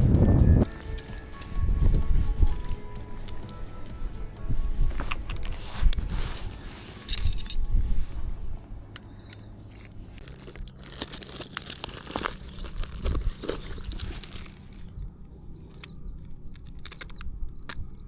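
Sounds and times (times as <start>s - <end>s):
rustling and crinkling: 0.6s - 18.0s
sharp clicks and light clinks: 15.6s - 18.0s.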